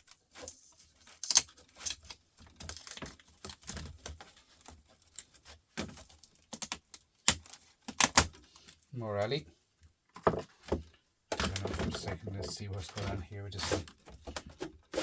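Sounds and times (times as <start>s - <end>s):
laptop parts clicking and clattering: 0.0s - 8.8s, 10.2s - 13.2s.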